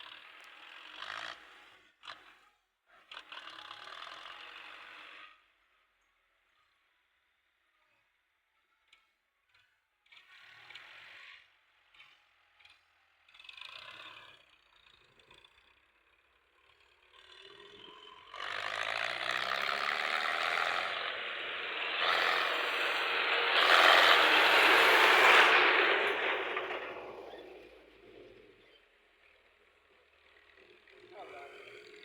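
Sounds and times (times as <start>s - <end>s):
tractor diesel engine: 14.8s - 32.0s.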